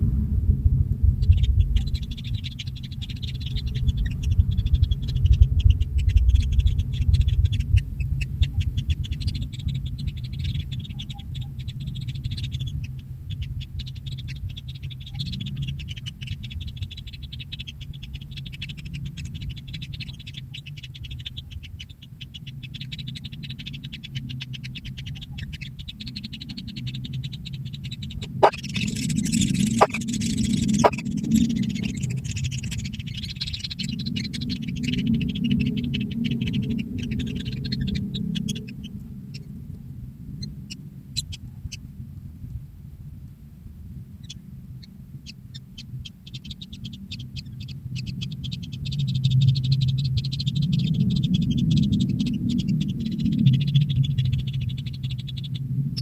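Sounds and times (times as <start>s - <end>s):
low rumble: 0.0s - 15.9s
nestlings churring: 1.2s - 39.5s.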